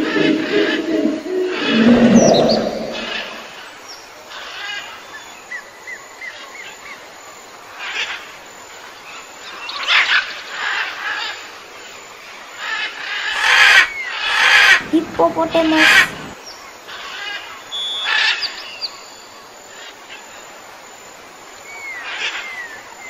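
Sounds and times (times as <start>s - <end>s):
small birds chirping: 13.0s - 19.6s.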